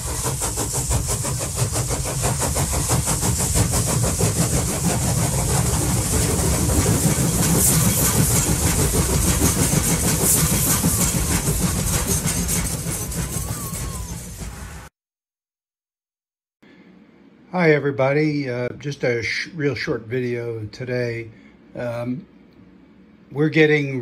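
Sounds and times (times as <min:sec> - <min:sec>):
train running: 0:00.0 - 0:14.9.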